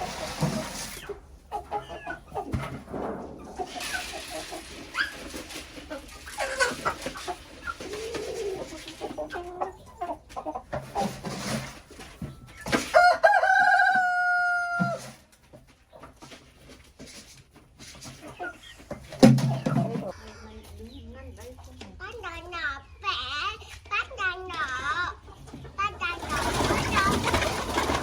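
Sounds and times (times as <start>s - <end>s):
chickens clucking: 0.0s - 28.0s
rooster crowing: 12.9s - 15.2s.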